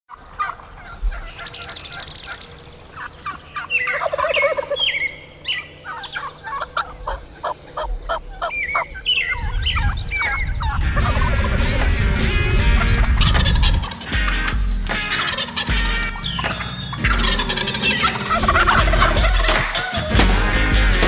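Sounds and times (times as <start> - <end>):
turkeys gobbling: 0.1 - 20.4
short sharp turkey calls: 0.4 - 8.8, 12.8 - 20.0.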